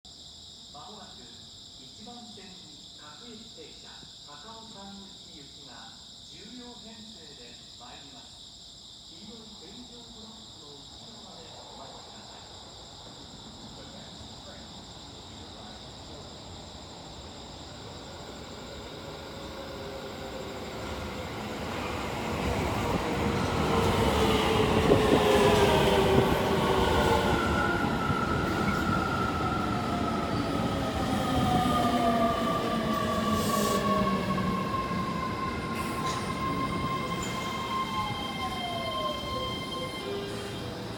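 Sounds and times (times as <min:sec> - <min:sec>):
train wheels rumbling on rails: 0:18.2 - 0:40.9.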